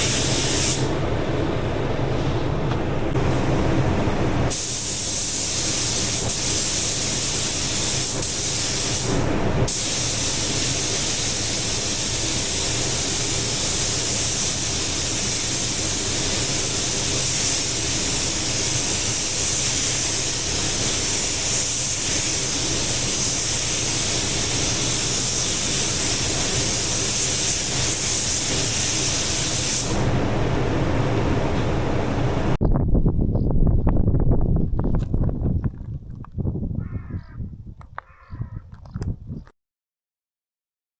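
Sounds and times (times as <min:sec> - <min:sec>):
low even hum: 0:00.0 - 0:04.8.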